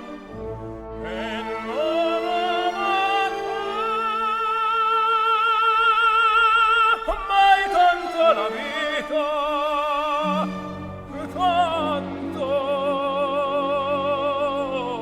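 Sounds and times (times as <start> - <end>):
sustained accompaniment: 0.0 - 5.5
operatic singing: 0.0 - 15.0.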